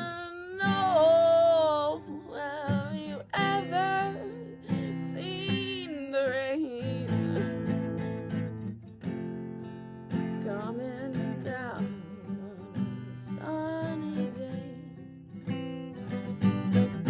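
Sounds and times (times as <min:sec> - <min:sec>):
acoustic guitar strumming: 0:14.4 - 0:17.0.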